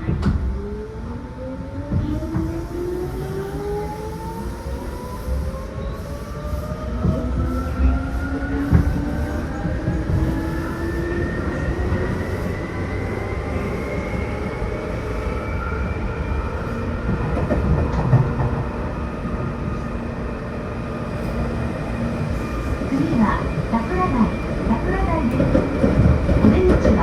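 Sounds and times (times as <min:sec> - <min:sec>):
track knocks: 0:00.0 - 0:00.6, 0:08.6 - 0:10.5, 0:17.0 - 0:18.8, 0:23.7 - 0:27.0
wheels rumbling on rails: 0:06.7 - 0:27.0.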